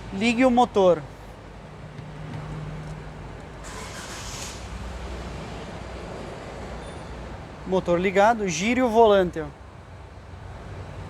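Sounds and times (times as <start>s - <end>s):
car engine cranking: 2.0s - 4.8s.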